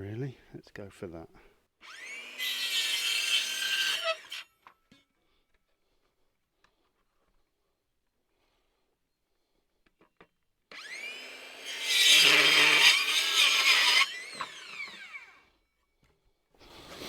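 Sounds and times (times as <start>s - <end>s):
electric saw cutting wood: 1.8s - 4.4s, 10.7s - 15.4s.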